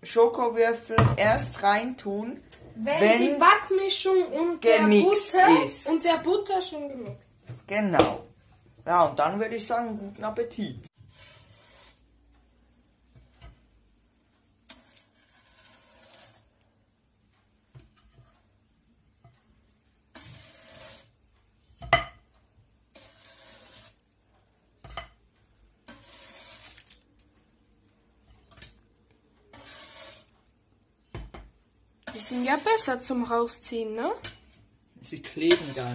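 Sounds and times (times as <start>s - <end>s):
metal spatula scraping baking tray: 11.0s - 12.1s, 14.7s - 16.6s, 20.1s - 21.2s, 22.9s - 24.0s, 25.8s - 27.0s, 29.5s - 30.4s, 32.0s - 35.9s
baking paper crinkling: 14.7s - 16.5s, 25.9s - 27.3s.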